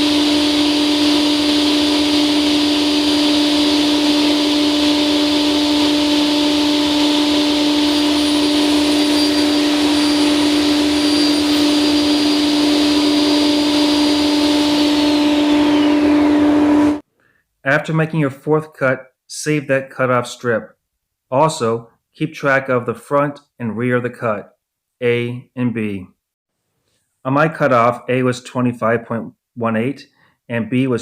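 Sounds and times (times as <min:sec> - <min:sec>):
table saw running: 0:00.0 - 0:17.0.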